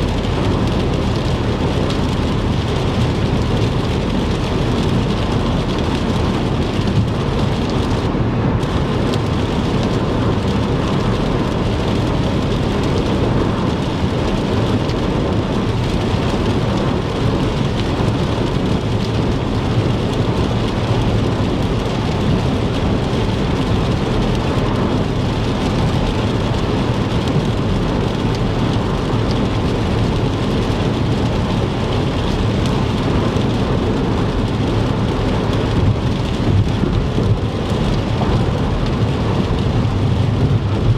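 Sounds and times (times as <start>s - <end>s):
heavy rain on a car: 0.0s - 40.9s
tyres and road noise: 0.0s - 40.9s.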